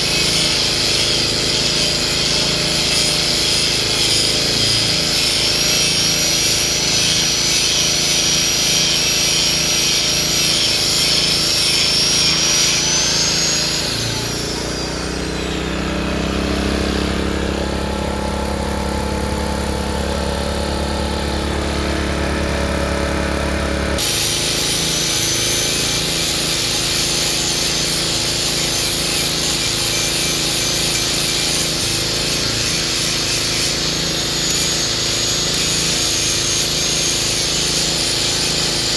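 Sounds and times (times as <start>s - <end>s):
high whine shifting in pitch: 13.0s - 24.9s
excavator engine and hydraulics: 13.0s - 27.3s.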